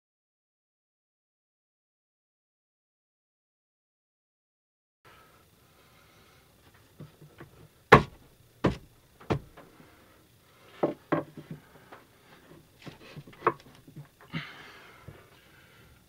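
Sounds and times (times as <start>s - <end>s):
hard wooden knocks and thumps: 7.4s - 9.6s, 10.8s - 11.6s, 12.8s - 14.0s.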